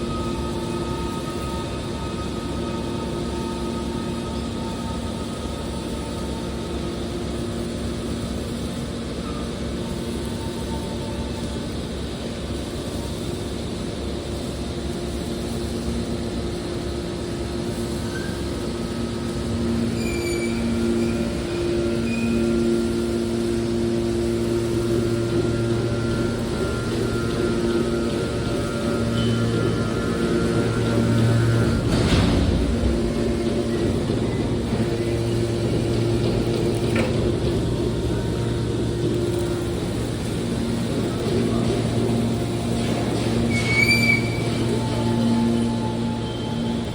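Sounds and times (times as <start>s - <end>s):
hydraulic baler humming: 0.0s - 46.9s
heavy machinery rumbling: 14.7s - 46.9s
short high squeals: 19.6s - 23.5s, 43.4s - 46.9s.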